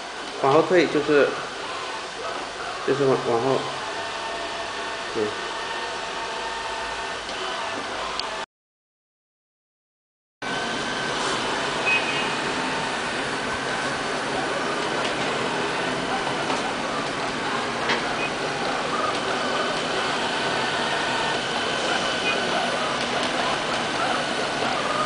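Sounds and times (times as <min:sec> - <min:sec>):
high steady whine: 0:00.0 - 0:08.4, 0:10.4 - 0:25.0
robot vacuum cleaner whirring: 0:10.5 - 0:25.0.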